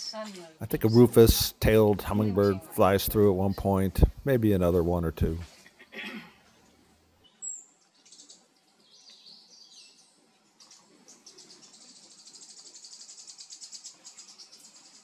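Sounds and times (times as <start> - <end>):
rapid ticking bird trill: 10.6 - 15.0.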